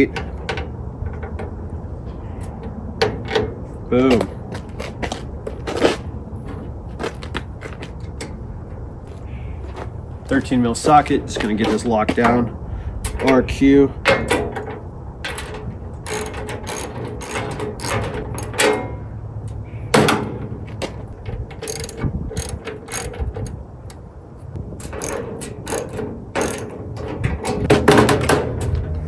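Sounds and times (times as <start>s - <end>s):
socket ratchet clicking: 16.0s - 18.7s, 21.6s - 24.0s, 24.8s - 26.8s.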